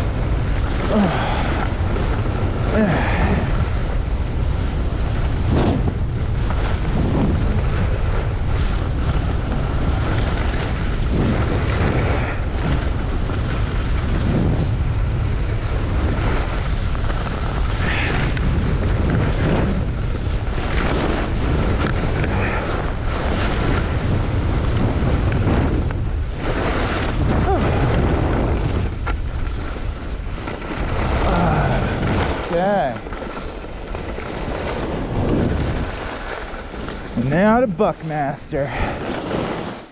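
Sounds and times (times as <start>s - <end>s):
wind rushing over microphone: 0.0s - 39.9s
skis swishing in snow: 15.8s - 39.9s.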